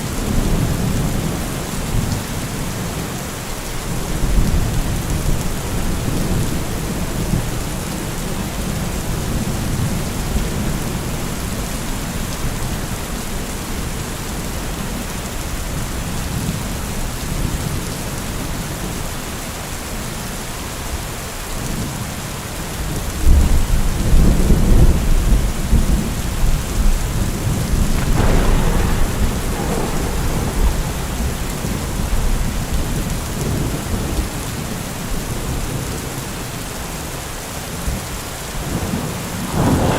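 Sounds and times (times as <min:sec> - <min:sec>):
heavy rain falling: 0:00.0 - 0:39.9
rolling thunder: 0:23.3 - 0:35.4, 0:38.7 - 0:39.9.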